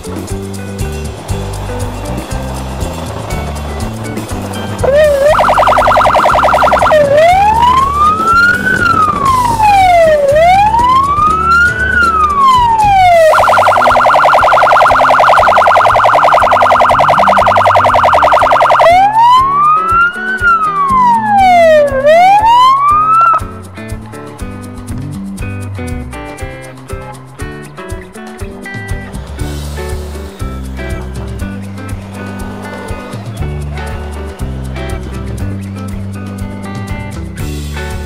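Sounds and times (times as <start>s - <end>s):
electronic siren warbling and wailing: 4.8s - 23.4s.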